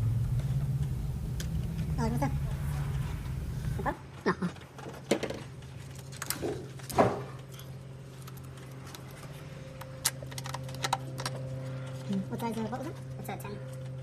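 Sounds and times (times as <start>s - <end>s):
steady low hum: 0.0s - 4.2s.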